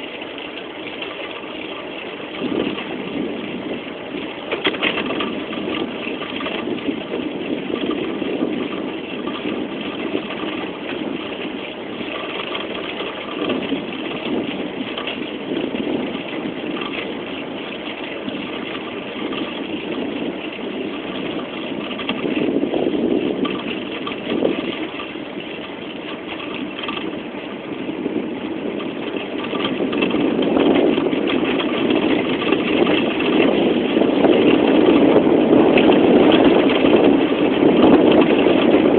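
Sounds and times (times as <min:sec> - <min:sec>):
bicycle tyres rolling: 0:00.0 - 0:38.9
wind on microphone: 0:00.0 - 0:38.9.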